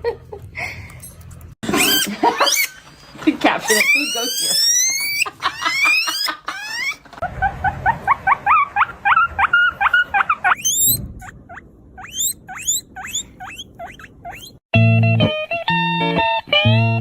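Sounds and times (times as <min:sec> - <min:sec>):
small animal squeaking: 0:03.6 - 0:07.0, 0:08.8 - 0:14.6.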